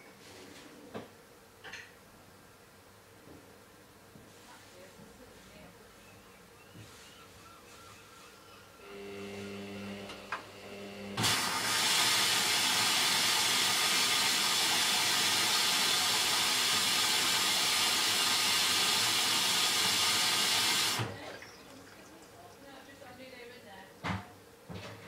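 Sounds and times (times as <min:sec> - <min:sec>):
washing machine low hum: 0:08.9 - 0:23.2.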